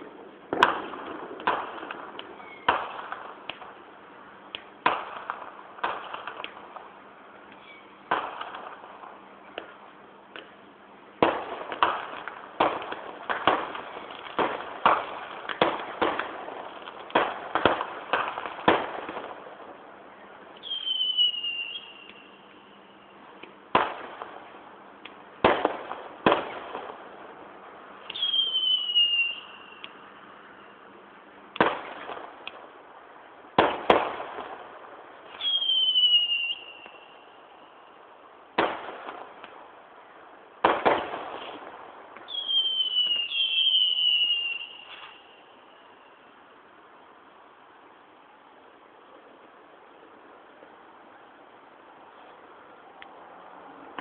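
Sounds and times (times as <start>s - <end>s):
distant fireworks bangs: 0.0s - 3.8s, 4.5s - 7.0s, 7.6s - 10.6s, 11.2s - 19.8s, 23.7s - 24.6s, 25.4s - 29.9s, 31.6s - 32.7s, 33.5s - 37.2s, 40.6s - 45.4s.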